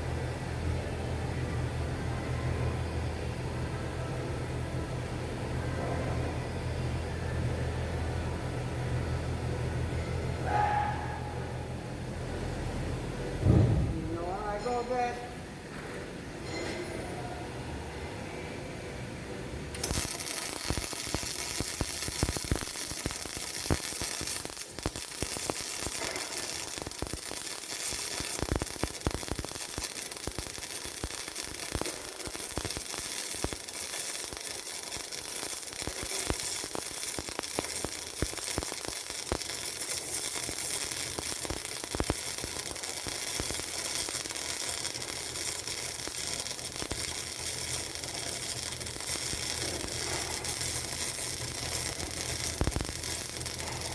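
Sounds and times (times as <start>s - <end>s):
welding arc crackling: 19.7s - 53.9s.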